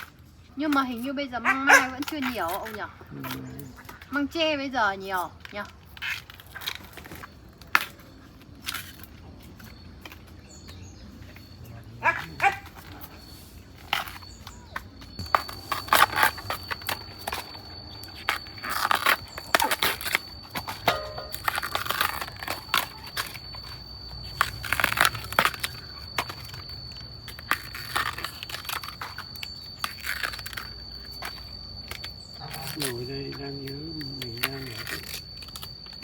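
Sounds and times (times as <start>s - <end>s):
dry plant material crunching: 5.0s - 36.0s
steady high whine: 12.2s - 36.0s.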